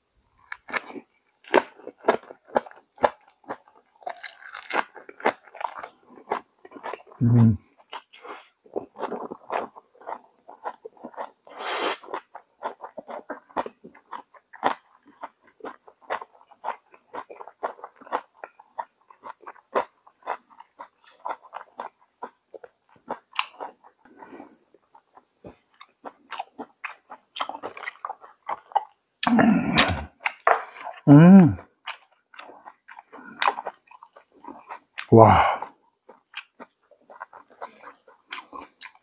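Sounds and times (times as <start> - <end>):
person chewing crunchy food: 0.3 - 39.0
short voiced hum: 7.2 - 7.6.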